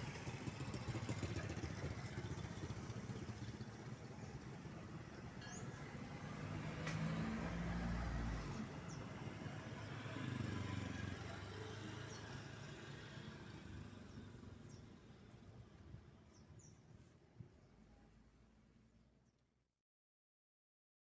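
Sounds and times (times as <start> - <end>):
vehicles driving past: 0.0 - 16.7.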